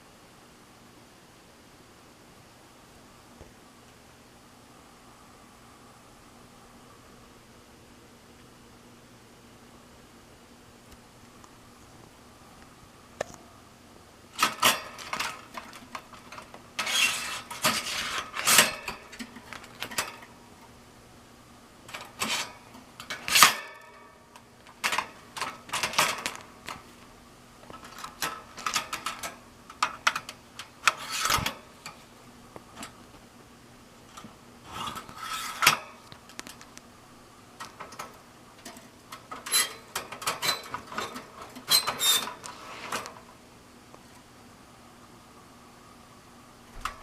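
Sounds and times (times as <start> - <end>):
metal cage parts clinking: 14.4 - 20.4, 21.9 - 24.2, 24.8 - 26.4, 27.7 - 32.0, 37.6 - 43.0.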